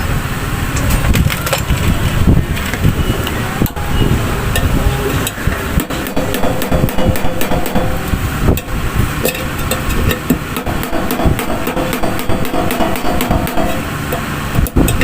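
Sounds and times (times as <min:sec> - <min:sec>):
tool knocking on metal casing: 0:05.8 - 0:08.7, 0:10.2 - 0:14.3.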